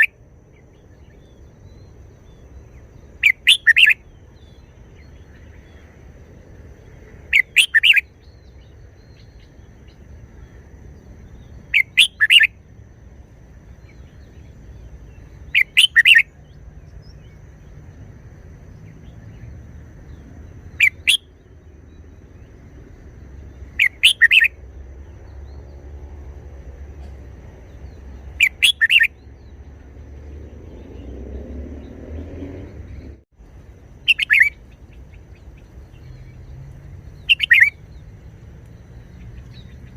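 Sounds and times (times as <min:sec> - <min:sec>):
bird singing short phrases: 0:00.0 - 0:05.8, 0:07.3 - 0:10.0, 0:11.3 - 0:12.5, 0:13.8 - 0:17.4, 0:23.5 - 0:24.5, 0:27.0 - 0:29.6, 0:34.0 - 0:39.9.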